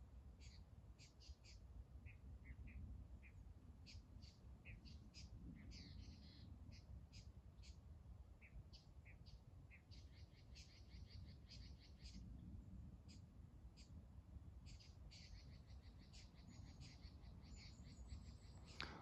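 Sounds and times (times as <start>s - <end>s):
faint birds chirping: 0.2s - 19.0s.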